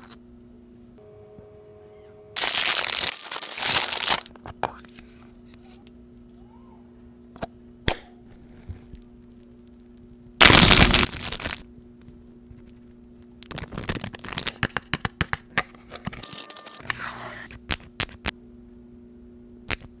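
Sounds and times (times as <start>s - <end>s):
packaging tearing: 2.4s - 4.3s, 10.4s - 11.6s, 16.2s - 16.9s
packaging crinkling: 2.4s - 4.4s, 10.4s - 11.6s.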